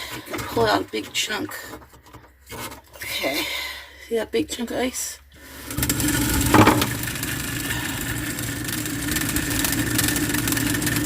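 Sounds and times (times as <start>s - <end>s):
mechanical motor hum: 5.4s - 11.0s.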